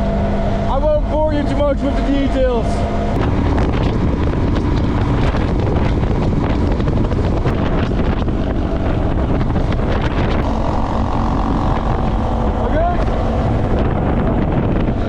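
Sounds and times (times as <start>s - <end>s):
motorcycle engine drone: 0.0s - 15.0s
wind rushing over microphone: 0.0s - 15.0s
knocks and rattles from road: 3.1s - 15.0s.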